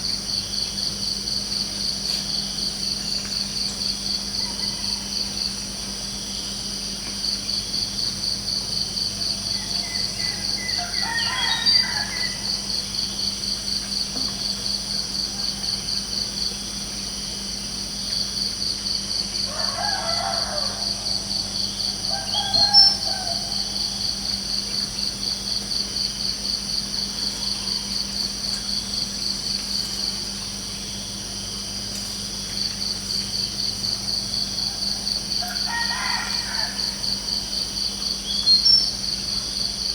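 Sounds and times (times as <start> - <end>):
crickets chirping: 0.0 - 39.9
rooster crowing: 4.4 - 5.4, 9.4 - 12.9, 19.4 - 24.5, 34.6 - 37.6.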